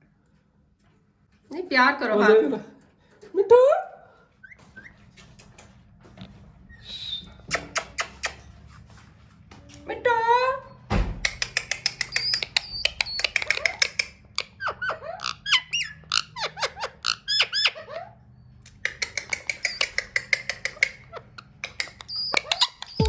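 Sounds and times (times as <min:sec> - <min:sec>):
parakeet chattering: 0:11.2 - 0:23.0.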